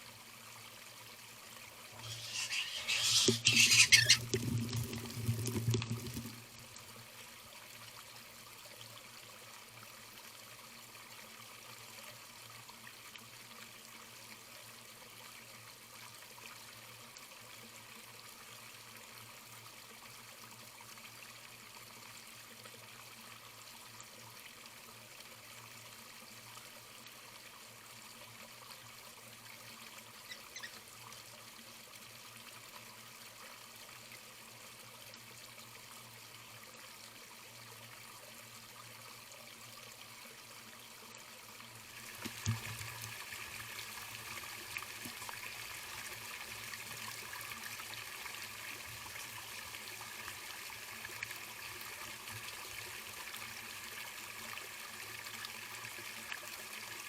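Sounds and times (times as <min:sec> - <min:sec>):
running water trickling: 0:00.6 - 0:08.6, 0:26.5 - 0:33.5, 0:39.9 - 0:57.0.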